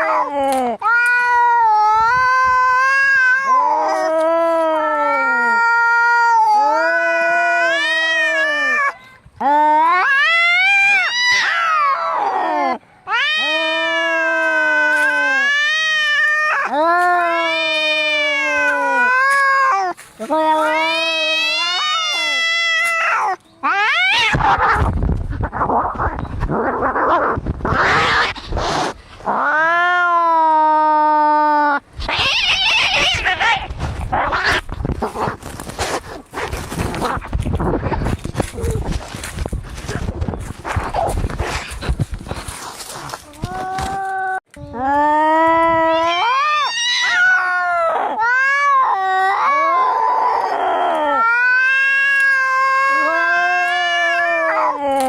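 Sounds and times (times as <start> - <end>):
cat yowling: 0.0 - 24.9, 29.3 - 34.7, 43.4 - 55.0
cats fighting with harsh cries: 0.0 - 55.0
cat hissing: 25.4 - 29.0, 32.0 - 38.9.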